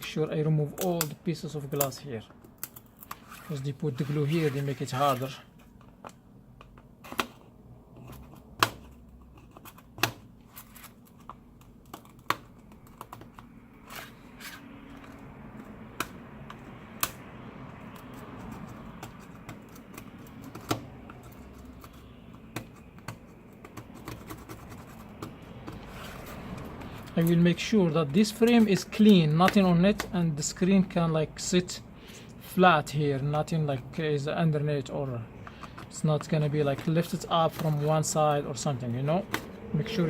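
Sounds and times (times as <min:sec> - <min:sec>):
screwdriver scratching: 0:02.6 - 0:05.3, 0:17.8 - 0:27.5.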